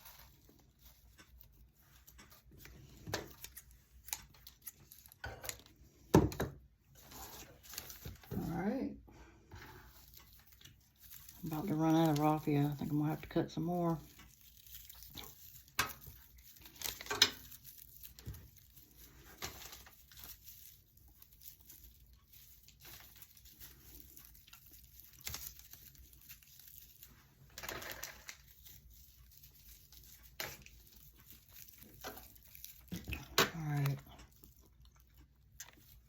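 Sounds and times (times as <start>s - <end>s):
raffia rustling: 9.6s - 34.8s.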